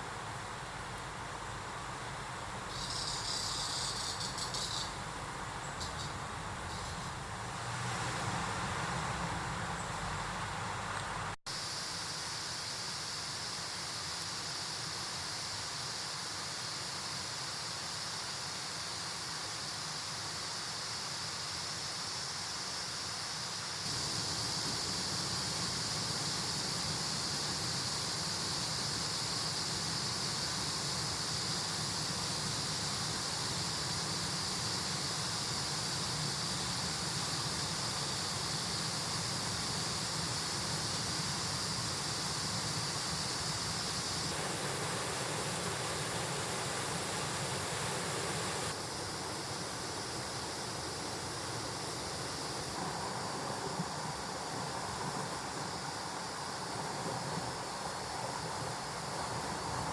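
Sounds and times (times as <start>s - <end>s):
stream rushing over rocks: 38.4s - 59.9s.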